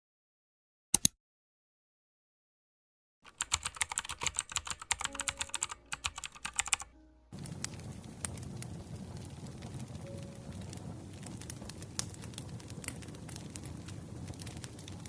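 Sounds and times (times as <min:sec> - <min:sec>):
computer keyboard typing: 0:03.3 - 0:07.0
sharp clicks: 0:03.3 - 0:07.0
campfire hissing and crackling: 0:07.3 - 0:15.0.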